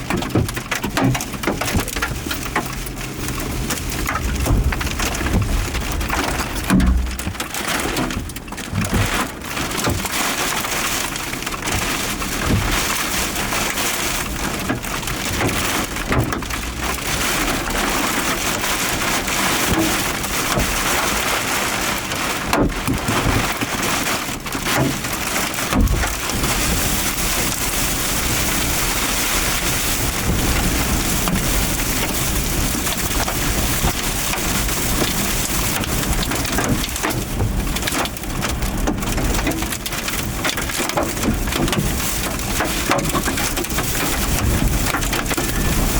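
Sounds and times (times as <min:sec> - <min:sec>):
hailstones knocking: 0:00.0 - 0:45.9
heavy rain hissing: 0:01.3 - 0:07.2, 0:25.7 - 0:45.9.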